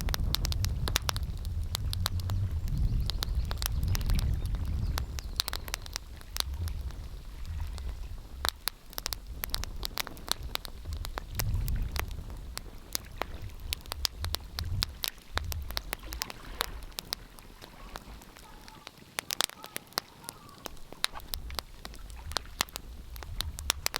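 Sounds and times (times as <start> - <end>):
wood fire crackling: 0.0 - 23.9
low rumble: 9.1 - 16.9.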